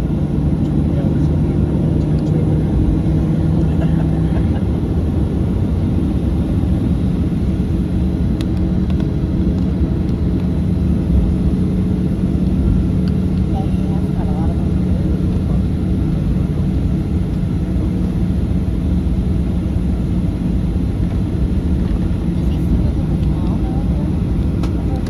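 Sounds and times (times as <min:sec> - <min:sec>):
airplane cabin rumble: 0:00.0 - 0:25.0.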